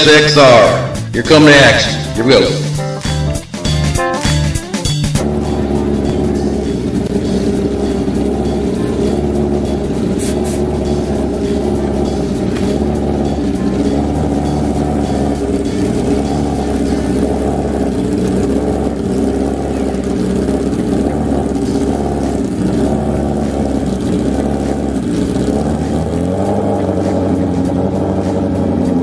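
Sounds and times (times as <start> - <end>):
sport bike engines running loud: 0.0 - 29.0.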